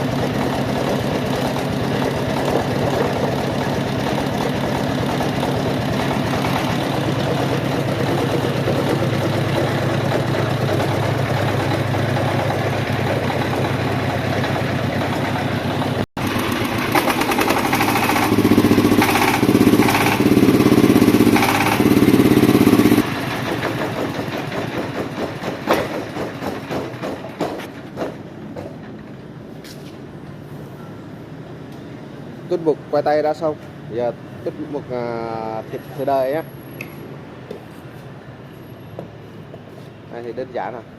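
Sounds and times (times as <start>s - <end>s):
diesel engine running: 0.0s - 29.6s.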